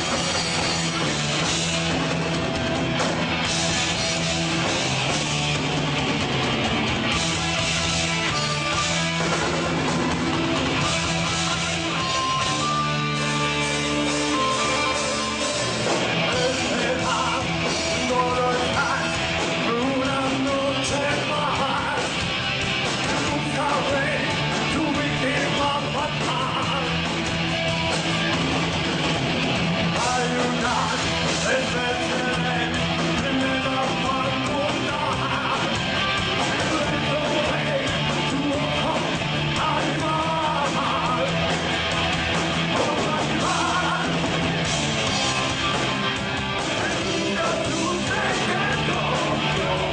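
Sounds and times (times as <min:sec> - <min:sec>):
rock band with electric guitars: 0:00.0 - 0:49.9
person singing: 0:16.2 - 0:22.2, 0:23.1 - 0:27.0, 0:30.0 - 0:35.8, 0:36.6 - 0:41.4, 0:42.7 - 0:44.3, 0:46.8 - 0:49.9.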